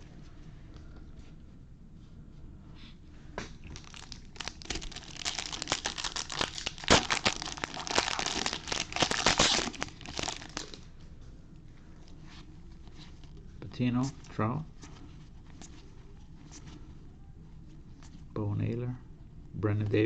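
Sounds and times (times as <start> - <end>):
foil wrapper tearing and crinkling: 3.7 - 10.8.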